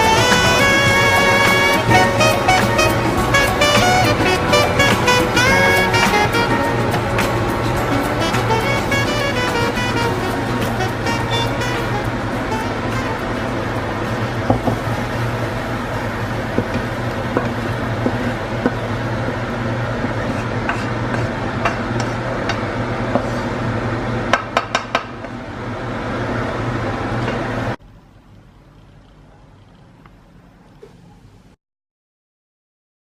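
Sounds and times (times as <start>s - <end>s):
steady hum: 0.0s - 24.4s
utensils scraping a pan: 20.0s - 22.2s.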